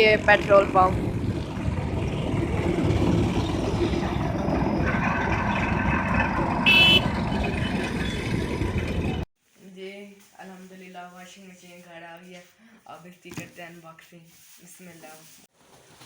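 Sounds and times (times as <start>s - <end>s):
road traffic rumble: 0.0s - 9.3s
vehicle horn toot: 6.6s - 8.2s.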